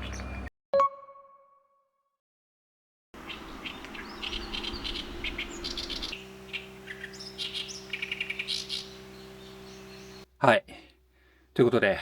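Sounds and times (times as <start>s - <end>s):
small birds chirping: 0.0s - 0.5s, 3.2s - 10.3s
steady low hum: 3.2s - 11.6s.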